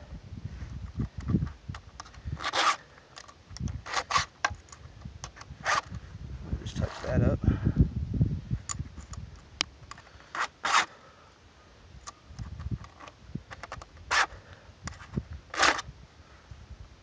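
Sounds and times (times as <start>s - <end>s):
file rasping on chainsaw chain: 2.4s - 2.9s, 3.8s - 4.3s, 14.1s - 14.4s.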